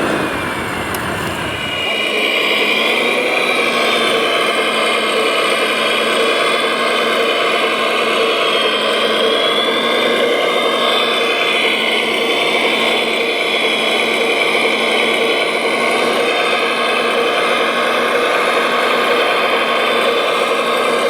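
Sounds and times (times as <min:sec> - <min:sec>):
small electric motors whining: 0:00.0 - 0:21.0.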